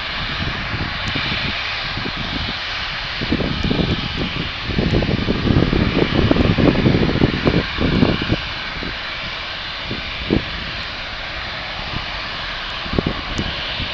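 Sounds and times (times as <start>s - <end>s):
jet engines at takeoff power: 0.0s - 13.9s.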